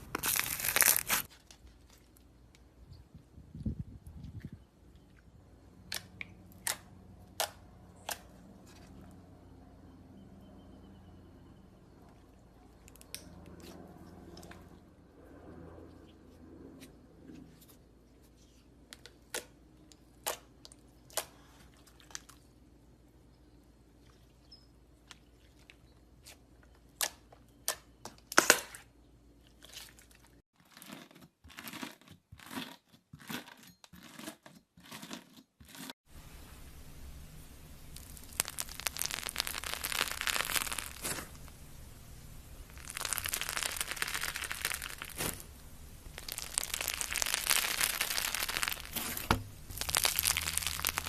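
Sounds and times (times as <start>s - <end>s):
slime crackling and popping: 0.0s - 1.3s, 37.8s - 51.0s.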